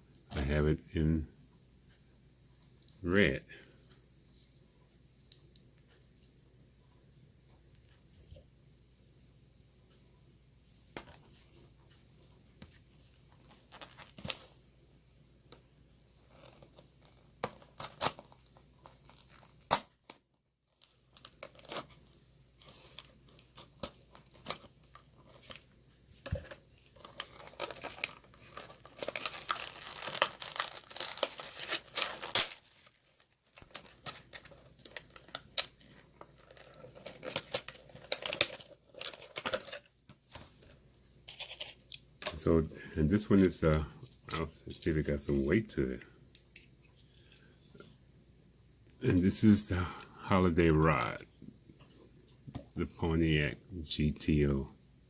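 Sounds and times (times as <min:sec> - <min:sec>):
plastic packaging crinkling: 0:16.0 - 0:42.6.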